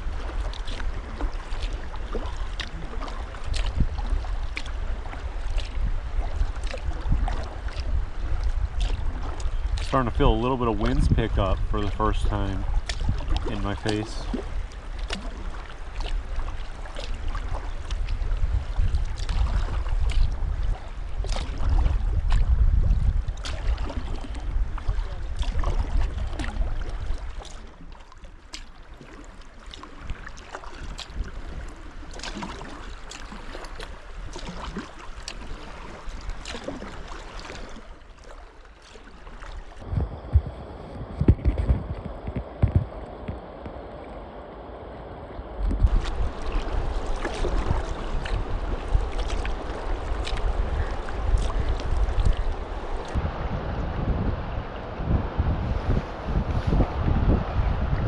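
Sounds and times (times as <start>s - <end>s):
wind buffeting microphone: 0.0s - 28.0s, 39.8s - 58.0s
kayak paddle splashing water: 0.0s - 44.3s, 45.6s - 53.2s.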